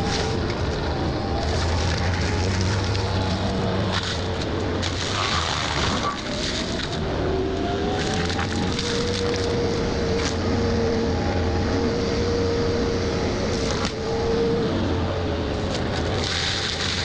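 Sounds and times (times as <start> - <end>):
wood cracking: 0.0 - 7.1, 7.8 - 10.4, 13.5 - 14.0, 15.6 - 17.0
mulcher grinding brush: 0.0 - 10.6, 13.4 - 14.6, 15.5 - 17.0
excavator engine under load: 0.0 - 17.0.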